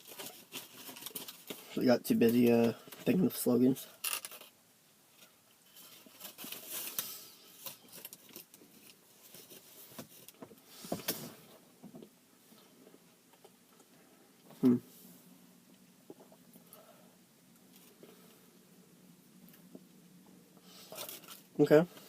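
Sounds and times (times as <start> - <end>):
rustling: 0.0 - 22.0
person humming: 14.6 - 14.9.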